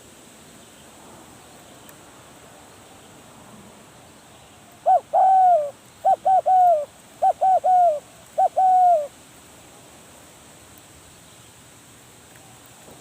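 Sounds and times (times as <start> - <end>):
dove cooing: 4.8 - 9.1.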